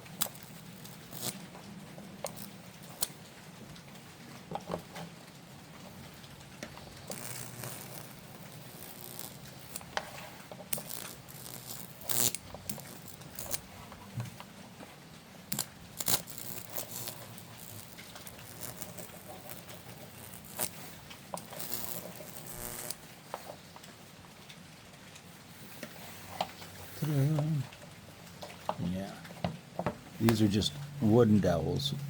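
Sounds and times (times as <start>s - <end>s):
sharp arcing snaps: 0.0s - 1.5s, 2.2s - 3.2s, 6.7s - 10.0s, 10.7s - 13.7s, 15.5s - 23.1s
high-voltage crackling and sizzling: 0.0s - 14.6s, 15.4s - 23.8s.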